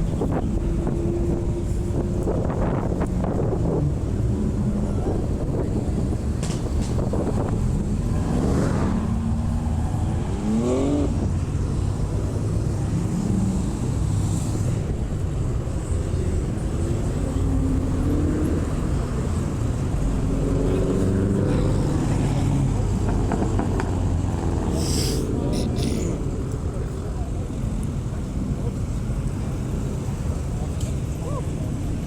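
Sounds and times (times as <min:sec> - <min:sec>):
car engines rumbling: 0:00.0 - 0:32.0
car engine revving: 0:07.0 - 0:14.6, 0:15.8 - 0:25.2.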